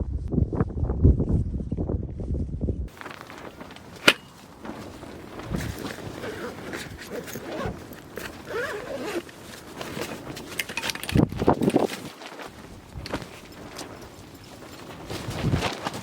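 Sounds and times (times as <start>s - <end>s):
zip-like scraping: 2.9s - 10.5s
fabric rustling: 2.9s - 16.0s.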